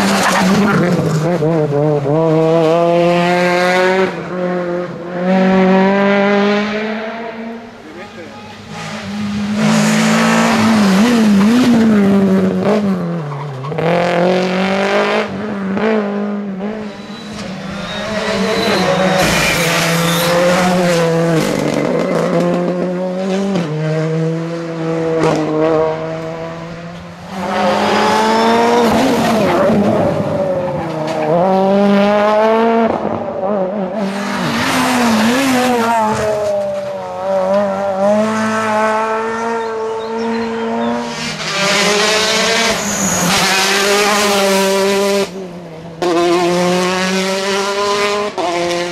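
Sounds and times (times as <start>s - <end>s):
rally car engines revving: 0.0s - 48.9s
tyres squealing: 16.8s - 20.5s.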